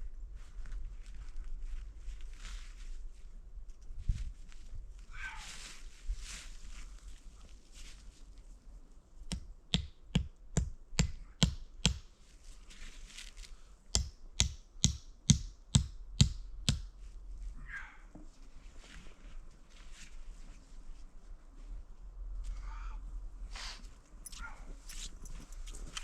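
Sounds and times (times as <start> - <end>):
sharp knocks: 9.3 - 12.1, 14.0 - 16.9.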